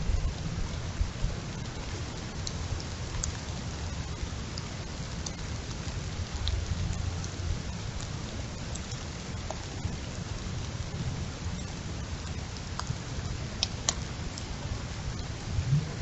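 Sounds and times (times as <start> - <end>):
heavy rain hissing: 0.0 - 16.0
low wind rumble: 0.0 - 16.0
rain drops ticking: 0.0 - 16.0.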